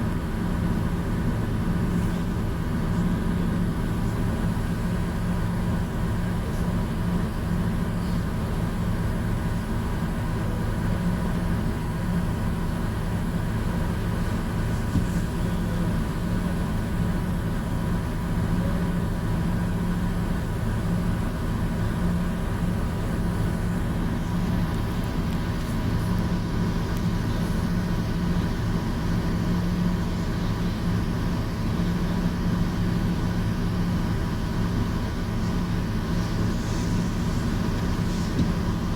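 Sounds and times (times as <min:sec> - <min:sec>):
ferry engine droning: 0:00.0 - 0:38.9.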